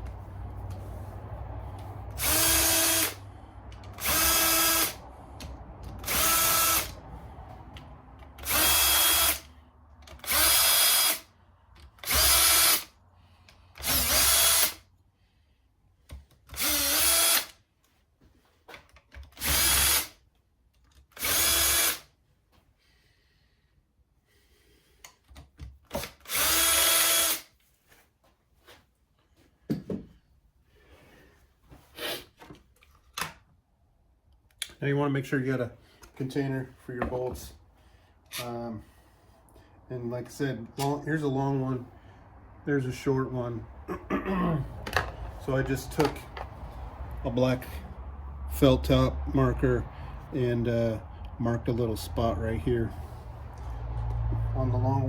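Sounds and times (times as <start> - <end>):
power drill spinning out bolts: 19.3 - 20.2.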